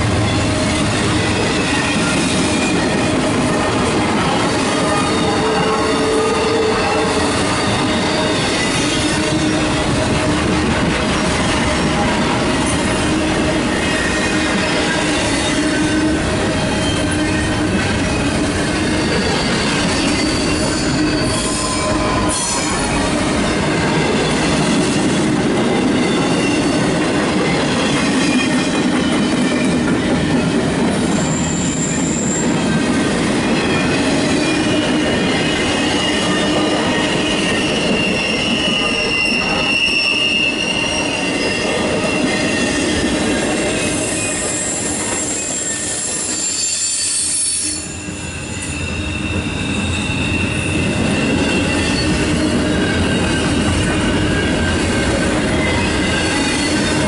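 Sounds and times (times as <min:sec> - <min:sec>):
freight train rumbling past: 0:00.0 - 0:57.0
high-pitched wheel squeals: 0:04.7 - 0:09.9, 0:13.7 - 0:23.2, 0:31.1 - 0:32.6, 0:33.8 - 0:43.1, 0:43.8 - 0:57.0.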